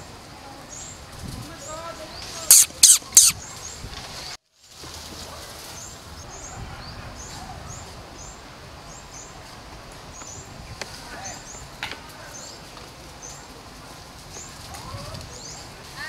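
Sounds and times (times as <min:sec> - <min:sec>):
faint outdoor ambience: 0:00.0 - 0:16.0
sharp high-pitched squeaks: 0:02.5 - 0:03.4
small bird chirping: 0:02.5 - 0:03.4.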